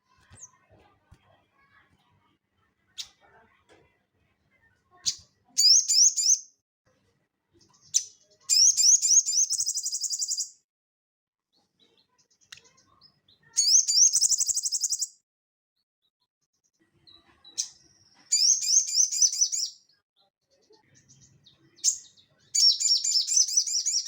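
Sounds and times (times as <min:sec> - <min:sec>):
bird singing high trills: 0:22.6 - 0:24.0.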